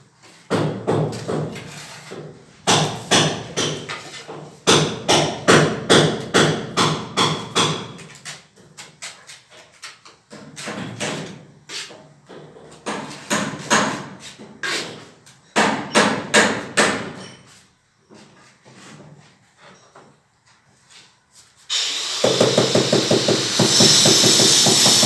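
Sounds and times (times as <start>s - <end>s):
hammer knocking: 22.2s - 25.0s.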